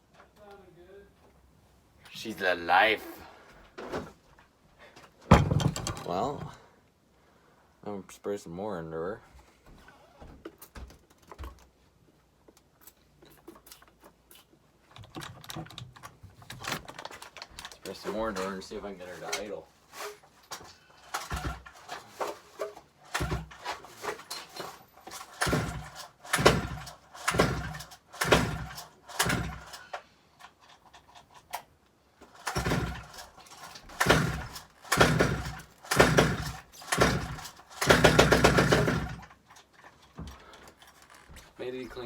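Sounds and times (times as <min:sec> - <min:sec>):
chainsaw recoil starter pulls: 0:15.0 - 0:41.3.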